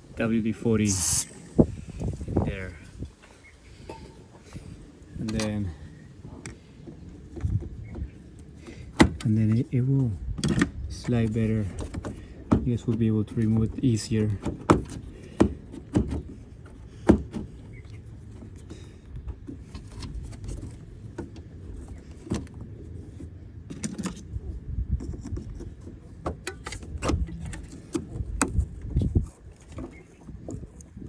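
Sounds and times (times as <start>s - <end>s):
hands and tools working a hose: 0.8s - 2.3s.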